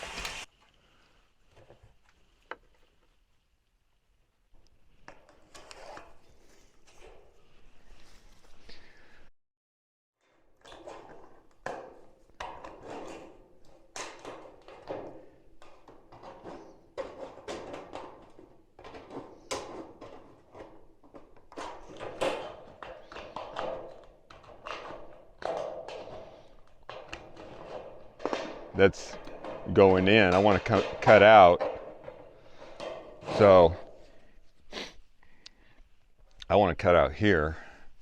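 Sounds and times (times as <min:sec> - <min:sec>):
knocks and clatter of building material: 0:10.2 - 0:38.0.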